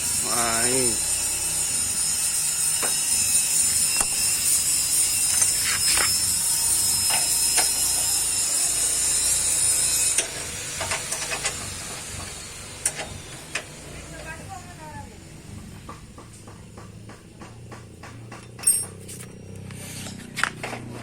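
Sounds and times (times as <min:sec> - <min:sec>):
welding hiss: 0:00.0 - 0:14.6.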